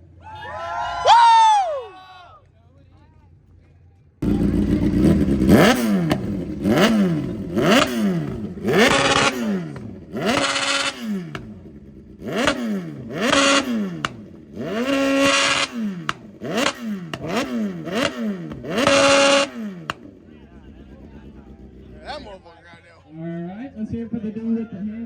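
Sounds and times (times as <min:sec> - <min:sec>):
motorcycle engine revving: 0:04.2 - 0:22.5.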